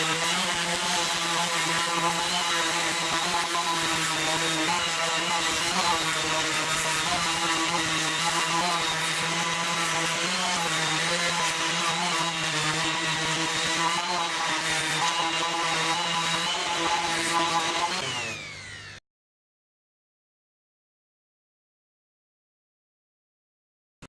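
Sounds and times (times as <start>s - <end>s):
sandpaper hissing on wood: 0.0s - 18.1s
orbital sander motor whine: 0.0s - 19.0s.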